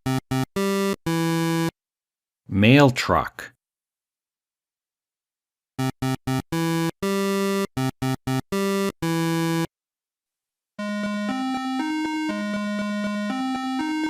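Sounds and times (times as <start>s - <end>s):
synthesizer melody: 0.0s - 1.7s, 5.8s - 9.7s, 10.8s - 14.0s.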